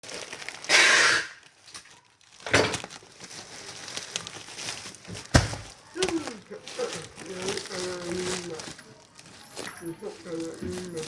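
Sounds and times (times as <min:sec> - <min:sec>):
packaging rustling: 0:00.0 - 0:11.0
knock on parcel: 0:05.1 - 0:05.8.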